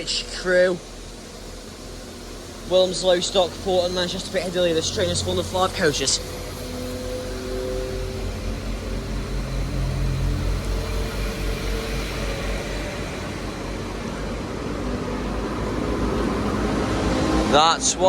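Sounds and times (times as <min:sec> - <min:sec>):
diesel train engines droning: 0:00.0 - 0:18.0.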